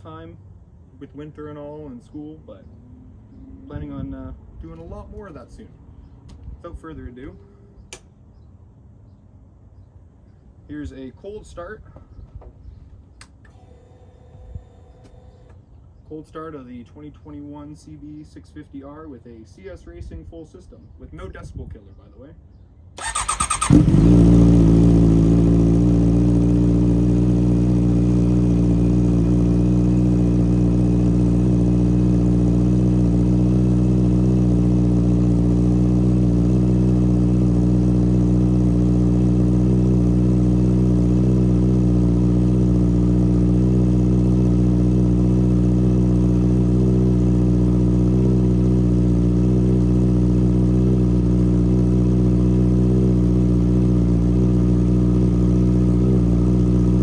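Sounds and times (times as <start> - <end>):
motorcycle engine idling loudly: 23.0 - 57.0.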